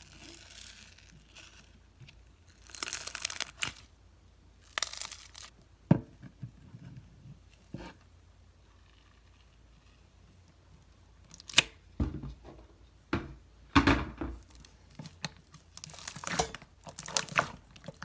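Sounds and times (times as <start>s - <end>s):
paper or plastic crinkling: 0.0s - 1.9s, 2.5s - 3.9s, 4.6s - 5.5s, 14.4s - 18.0s.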